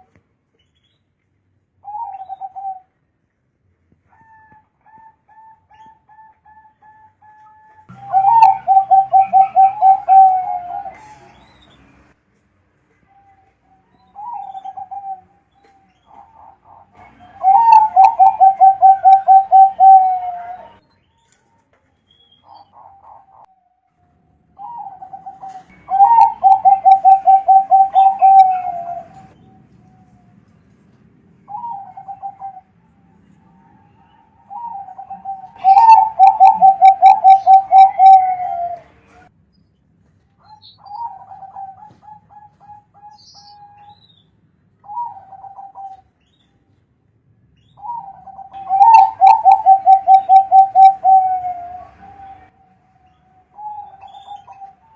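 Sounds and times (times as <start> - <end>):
dove cooing: 1.8 - 2.9, 4.1 - 11.3, 14.2 - 15.3, 16.1 - 20.8, 24.6 - 29.4, 31.5 - 32.8, 33.9 - 39.0, 40.5 - 43.9, 44.8 - 46.0, 47.8 - 52.5.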